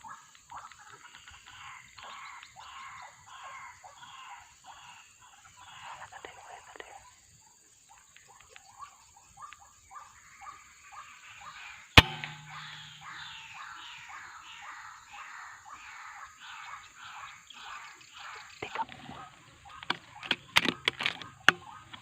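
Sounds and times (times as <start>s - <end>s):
waterhens calling: 11.5s - 22.0s
loud sharp crack: 12.0s - 13.8s.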